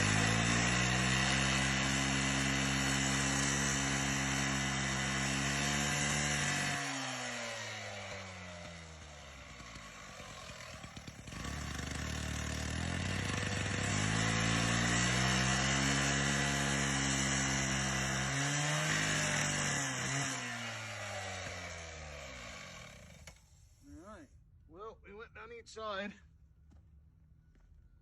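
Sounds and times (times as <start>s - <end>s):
cut-off saw engine revving: 0.0s - 23.4s.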